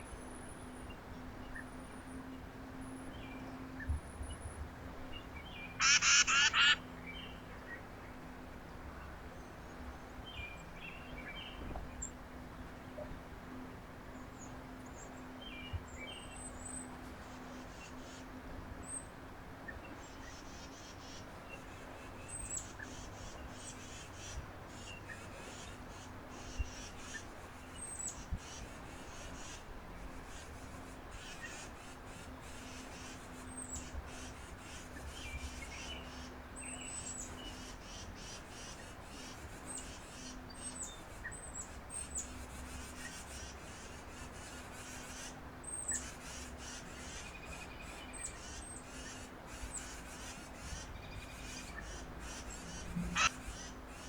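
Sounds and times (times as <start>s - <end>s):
small birds chirping: 3.1s - 7.9s, 19.7s - 54.0s.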